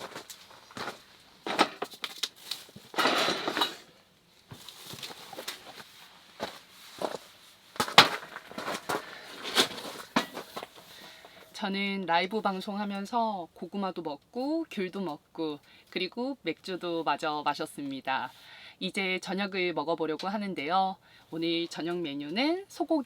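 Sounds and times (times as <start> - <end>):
rustling: 0.0 - 11.6.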